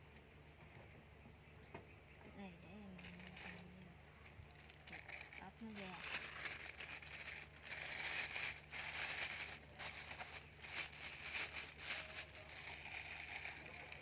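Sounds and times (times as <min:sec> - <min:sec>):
fruit husk cracking apart: 0:03.0 - 0:14.0.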